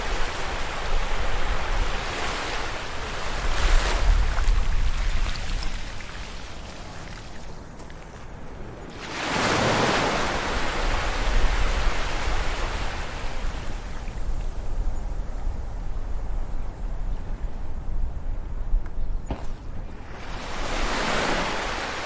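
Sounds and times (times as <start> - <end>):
sea waves breaking on beach: 0.0 - 7.4, 8.9 - 14.0, 19.9 - 22.0.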